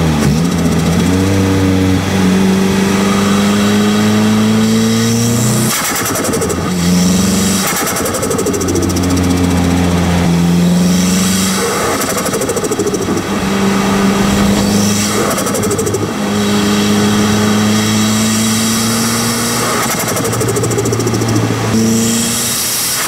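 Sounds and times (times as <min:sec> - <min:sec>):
turbocharged car engine driving: 0:00.0 - 0:23.0.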